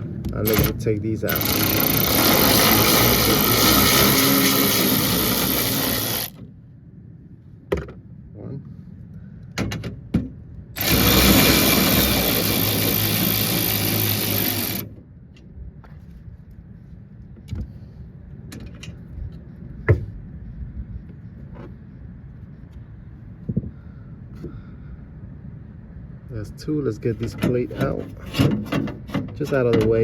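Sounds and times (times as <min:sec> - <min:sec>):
cordless power driver spinning: 0:00.5 - 0:06.4, 0:10.8 - 0:14.9.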